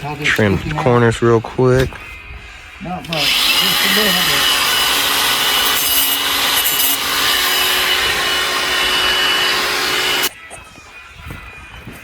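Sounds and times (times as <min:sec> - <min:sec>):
power saw cutting wood: 0:03.0 - 0:10.3.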